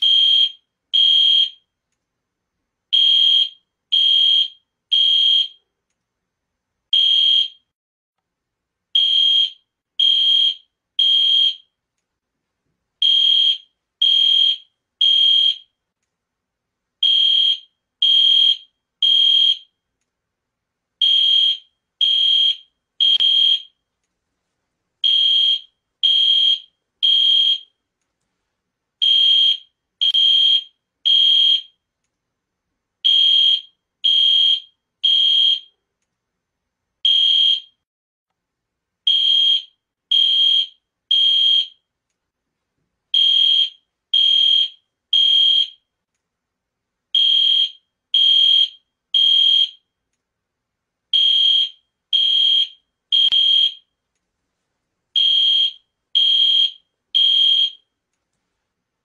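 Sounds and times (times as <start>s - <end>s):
fire alarm horn beeping: 0.0s - 1.7s, 3.0s - 5.6s, 6.9s - 7.7s, 9.0s - 11.7s, 13.0s - 15.8s, 17.0s - 19.7s, 21.0s - 23.8s, 25.0s - 27.8s, 29.0s - 31.8s, 33.1s - 35.8s, 37.1s - 37.8s, 39.1s - 41.8s, 43.2s - 45.8s, 47.2s - 49.8s, 51.2s - 53.9s, 55.2s - 57.9s.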